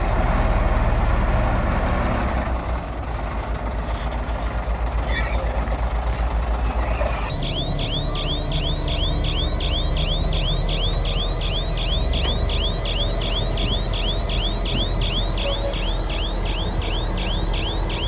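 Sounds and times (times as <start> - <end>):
heavy diesel engine droning: 0.0 - 18.0
high sweeping chirp: 7.3 - 18.0.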